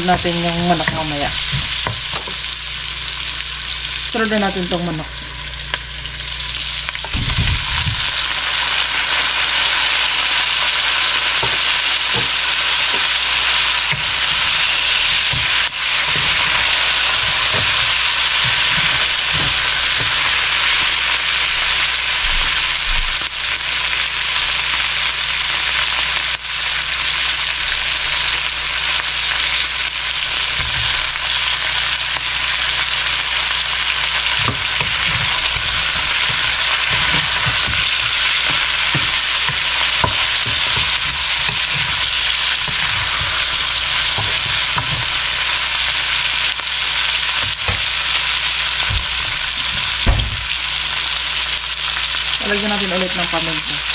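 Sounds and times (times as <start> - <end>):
chicken sizzling in hot oil: 0.0 - 53.9
spatula knocking on wok: 13.9 - 20.4, 34.4 - 45.2.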